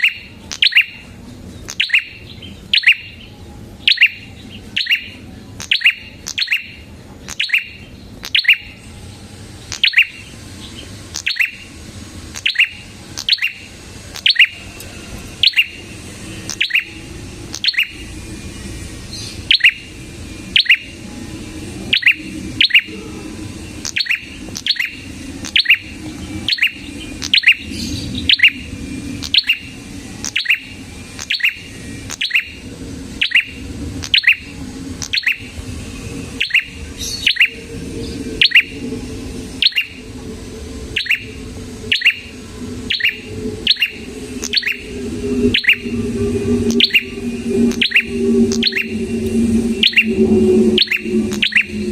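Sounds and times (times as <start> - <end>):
songbird high sharp chirps: 0.0 - 1.0, 1.6 - 8.8, 9.7 - 11.7, 12.4 - 14.6, 15.4 - 21.0, 23.8 - 32.6, 33.2 - 34.4, 35.0 - 35.5, 36.4 - 37.7, 39.6 - 40.0, 41.0 - 42.3, 42.9 - 51.9.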